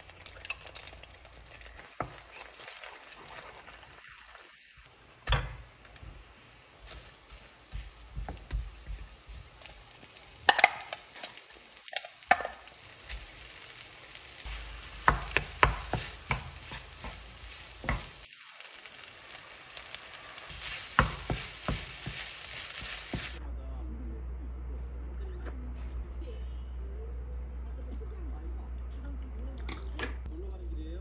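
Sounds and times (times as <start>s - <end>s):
fried rice sizzling in a pan: 0.0s - 23.4s.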